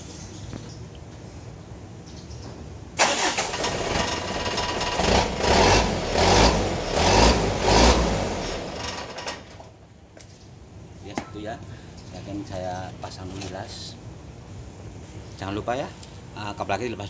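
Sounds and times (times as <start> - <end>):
car engine revving: 3.0 - 9.2.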